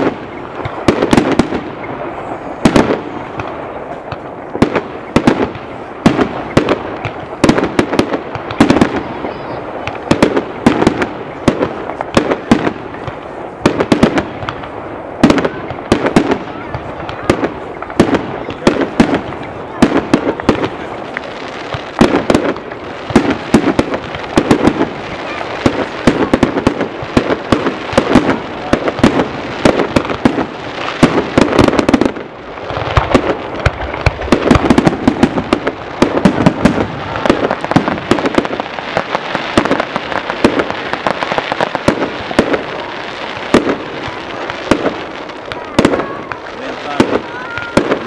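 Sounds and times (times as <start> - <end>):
fireworks crackling: 0.0 - 48.0.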